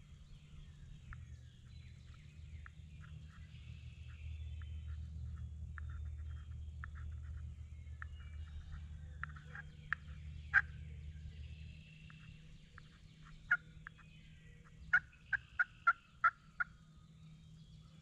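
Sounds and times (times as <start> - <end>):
wild turkey yelping: 8.0 - 10.8, 12.2 - 14.0, 14.7 - 16.8.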